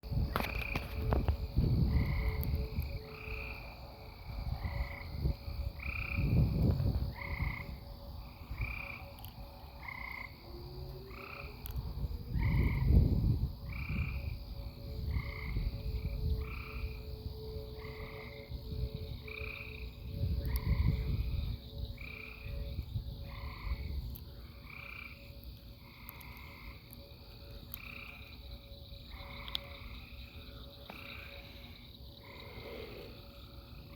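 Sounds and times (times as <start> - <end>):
wind buffeting microphone: 0.0 - 24.7
frogs croaking: 0.1 - 33.9.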